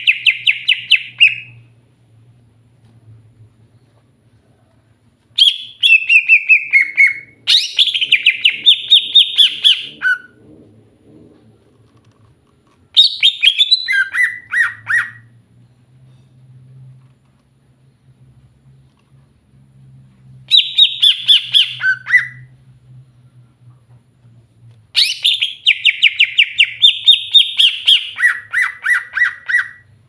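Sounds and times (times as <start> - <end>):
bird chattering song: 0.0 - 1.6, 5.4 - 10.3
faint low hum: 0.0 - 30.0.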